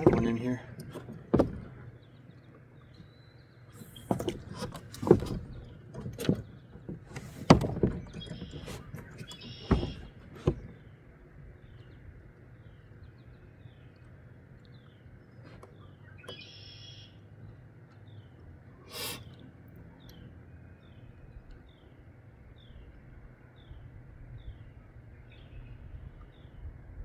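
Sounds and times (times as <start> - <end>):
knocks and clunks in a boat: 0.0 - 27.0.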